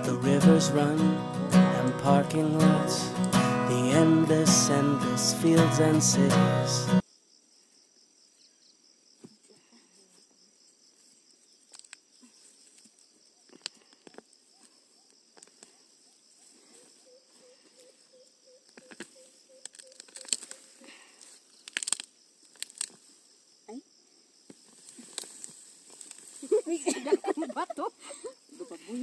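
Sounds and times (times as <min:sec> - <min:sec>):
low pulsed calls: 0:00.0 - 0:07.0
crickets chirping: 0:00.0 - 0:29.0.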